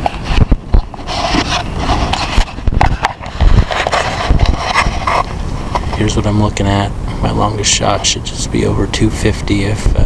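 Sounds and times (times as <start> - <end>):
thumps and rustles: 0.0 - 6.1
wind buffeting microphone: 0.0 - 10.0.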